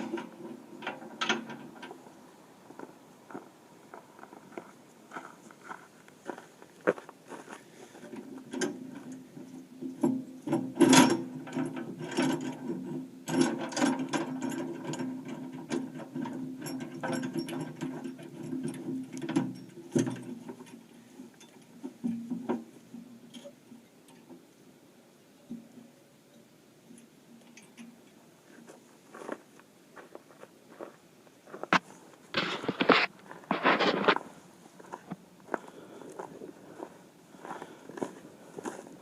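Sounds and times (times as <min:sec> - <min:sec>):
chain clanking on metal: 0:08.5 - 0:20.8.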